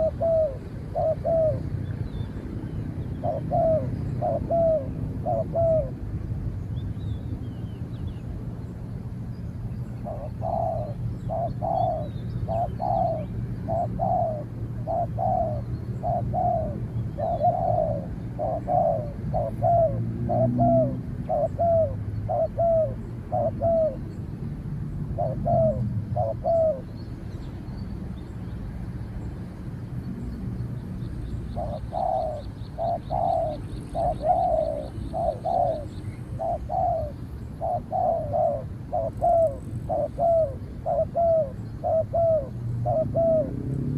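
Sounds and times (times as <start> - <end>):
doves cooing: 0.0 - 2.0, 3.1 - 6.0, 10.0 - 24.1, 25.0 - 26.9, 31.4 - 43.9.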